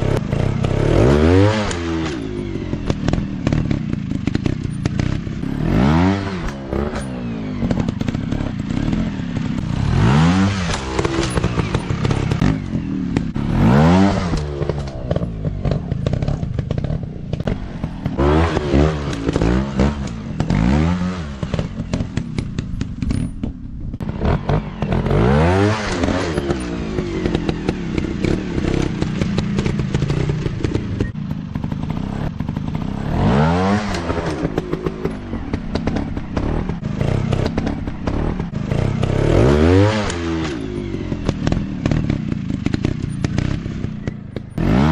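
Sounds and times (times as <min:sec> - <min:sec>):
dirt bike engines revving: 0:00.0 - 0:44.9
sharp clicks and clatter: 0:06.4 - 0:13.4, 0:14.2 - 0:20.7, 0:21.3 - 0:25.2, 0:25.9 - 0:33.1, 0:33.8 - 0:44.6.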